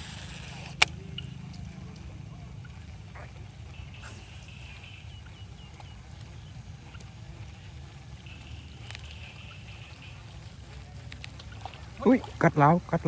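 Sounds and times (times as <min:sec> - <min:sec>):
high thin chirping call: 0:00.0 - 0:01.6, 0:08.1 - 0:11.1
low outdoor rumble: 0:00.0 - 0:13.0.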